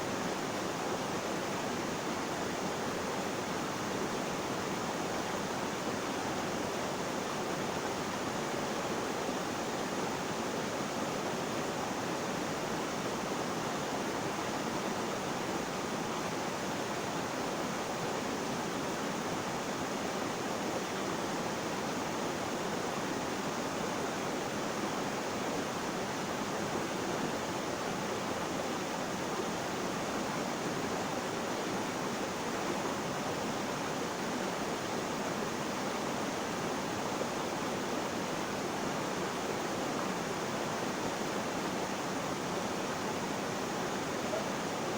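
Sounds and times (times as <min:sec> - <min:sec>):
flowing water rushing: 0:09.4 - 0:44.9.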